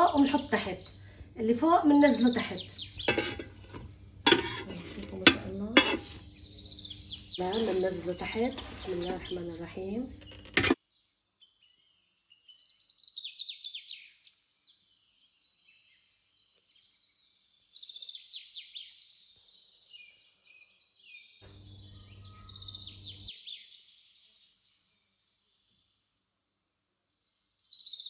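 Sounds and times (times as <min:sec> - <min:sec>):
low electrical hum: 0:00.0 - 0:10.8, 0:21.4 - 0:23.3
songbird trilling: 0:21.7 - 0:23.3.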